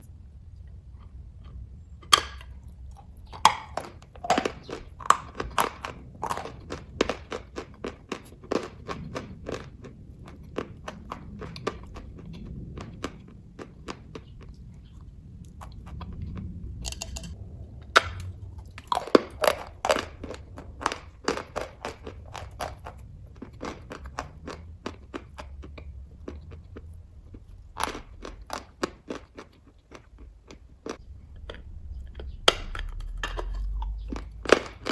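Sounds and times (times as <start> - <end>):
chewing with wet mouth clicks: 0.0 - 34.9
sharp biting sounds: 17.9 - 34.9.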